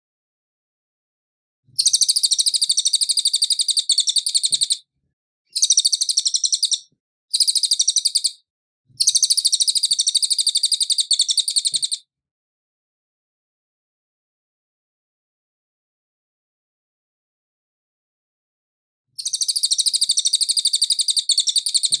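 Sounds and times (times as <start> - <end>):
songbird trilling: 1.8 - 4.8, 5.6 - 8.4, 9.0 - 12.0, 19.2 - 22.0.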